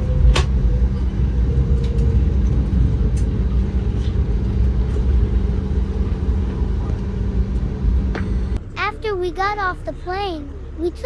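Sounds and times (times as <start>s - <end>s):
jet engines rumbling: 0.0s - 9.4s
constant cabin hum: 0.0s - 11.0s.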